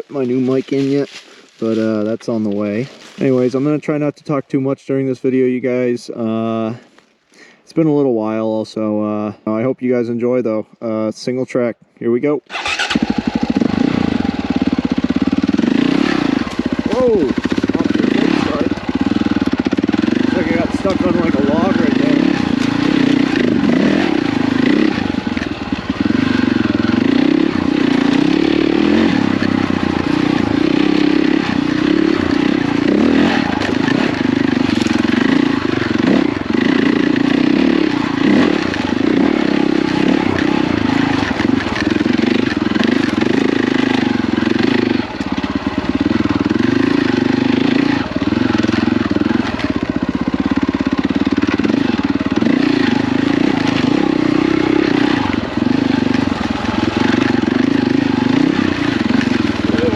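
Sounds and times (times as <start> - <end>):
dirt bike engine revving: 12.5 - 59.9.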